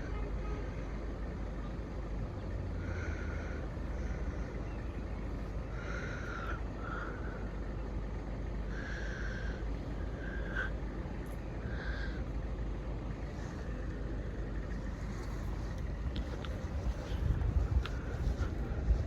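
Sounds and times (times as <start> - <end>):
distant road traffic: 0.0 - 19.0
wind rumble: 8.8 - 19.0.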